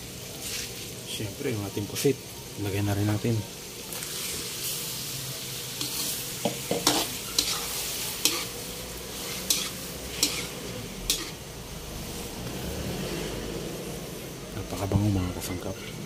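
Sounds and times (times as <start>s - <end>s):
squid sizzling in a wok: 0.0s - 16.0s
spatula scraping and knocking pan: 5.8s - 8.5s, 9.4s - 10.5s.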